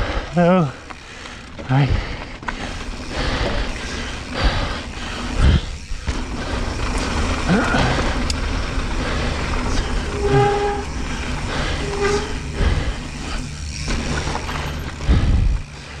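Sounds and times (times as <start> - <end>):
wind and tyre rush: 0.0 - 16.0
horn blasts: 10.0 - 12.7.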